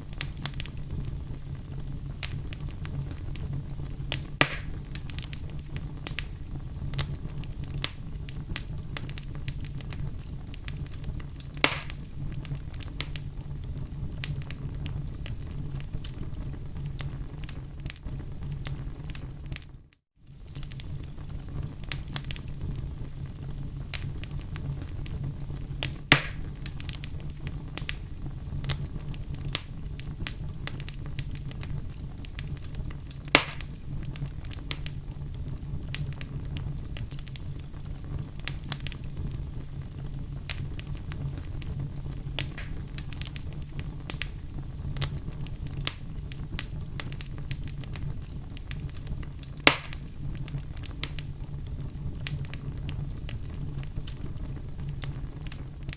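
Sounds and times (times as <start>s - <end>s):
campfire crackling: 0.0s - 55.9s
sharp wood pops: 4.4s - 4.7s, 11.6s - 12.0s, 26.1s - 26.4s, 33.4s - 33.7s, 49.7s - 50.0s.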